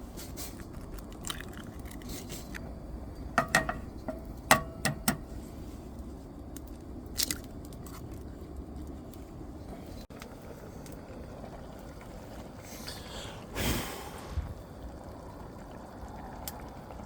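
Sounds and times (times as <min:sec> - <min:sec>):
tableware clinking: 0:03.4 - 0:05.2.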